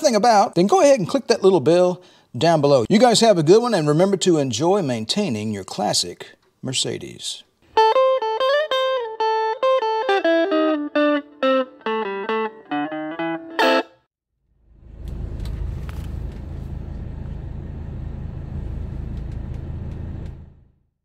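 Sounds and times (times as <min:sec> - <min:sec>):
guitar plucked notes: 0:07.7 - 0:14.1.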